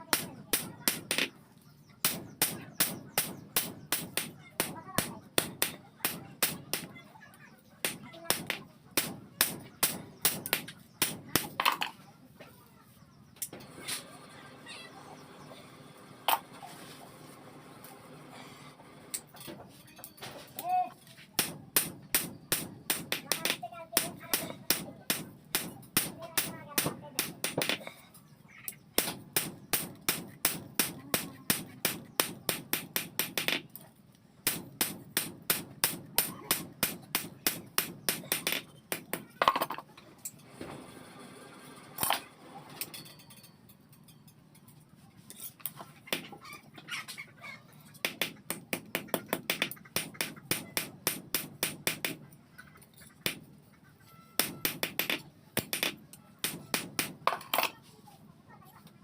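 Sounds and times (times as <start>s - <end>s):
hammer blows on steel anvil: 54.3s - 57.2s.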